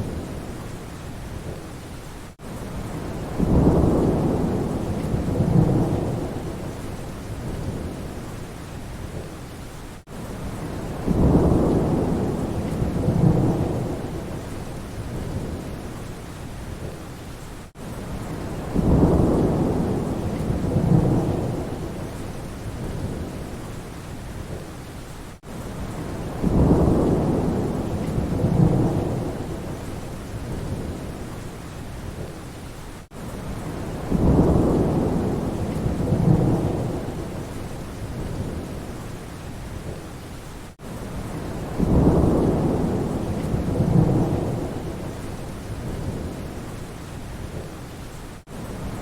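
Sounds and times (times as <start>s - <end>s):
steady rain: 0.0s - 49.0s
thunder rumble: 2.8s - 8.2s, 10.6s - 15.9s, 18.1s - 23.6s, 25.8s - 31.2s, 33.5s - 38.9s, 41.2s - 46.6s.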